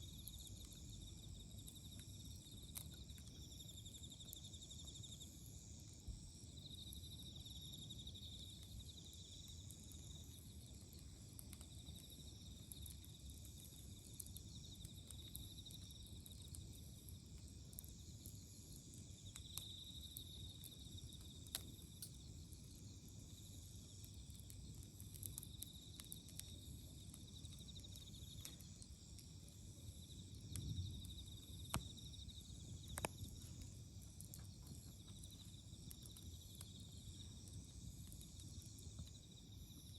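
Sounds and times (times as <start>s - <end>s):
campfire crackling and popping: 0.0s - 39.9s
crickets and insects chirring: 0.0s - 39.9s.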